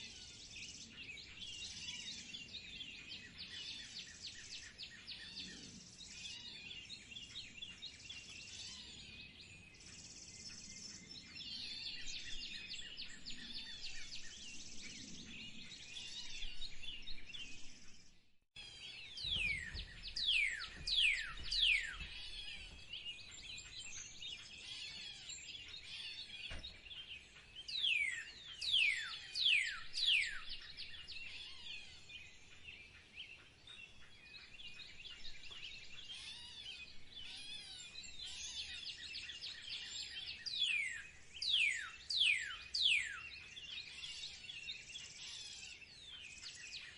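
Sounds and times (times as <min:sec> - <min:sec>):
songbirds chirping and singing: 0:00.0 - 0:46.9
bird singing falling whistles: 0:19.0 - 0:26.9.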